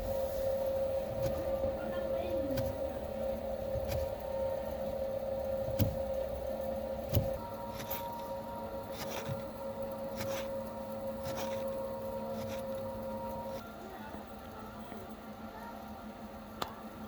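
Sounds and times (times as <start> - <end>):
small electric motor running: 0.0 - 13.6.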